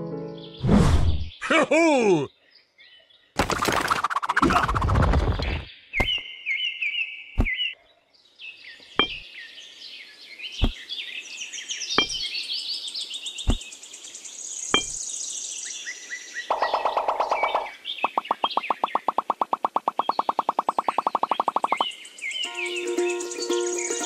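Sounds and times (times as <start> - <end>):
small birds chirping: 5.2 - 24.0.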